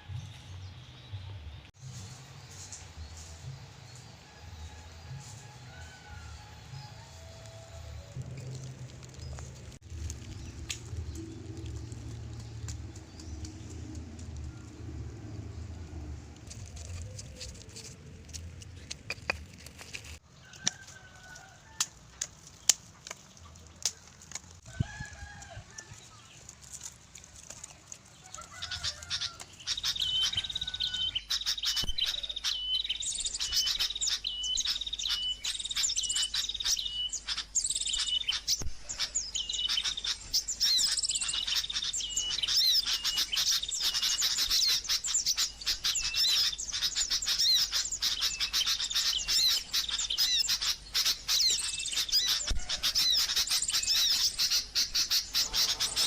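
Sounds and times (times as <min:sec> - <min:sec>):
small birds chirping: 0:08.0 - 0:21.3, 0:25.5 - 0:56.0.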